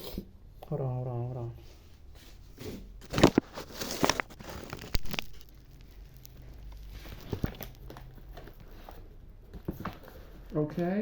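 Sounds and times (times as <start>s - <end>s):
rustling: 1.6s - 11.0s.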